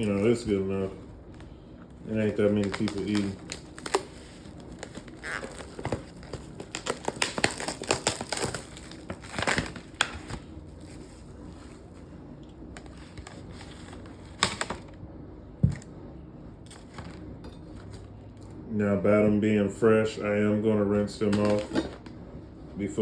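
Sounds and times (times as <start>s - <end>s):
food packaging crinkling: 0.0s - 11.7s, 12.8s - 14.9s.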